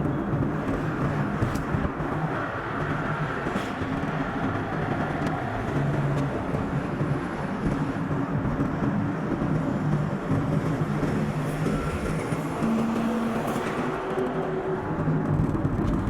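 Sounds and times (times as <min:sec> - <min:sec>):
car engine while driving: 0:00.0 - 0:16.0
road noise: 0:00.0 - 0:16.0.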